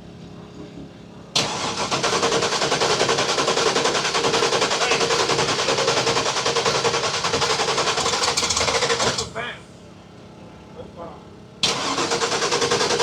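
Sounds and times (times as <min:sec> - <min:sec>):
drag car engine choppy idle: 0:01.5 - 0:09.3, 0:11.7 - 0:13.0.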